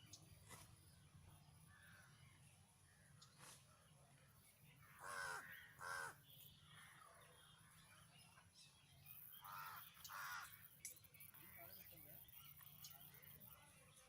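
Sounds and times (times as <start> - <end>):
crow cawing: 5.0 - 6.2, 9.4 - 10.5.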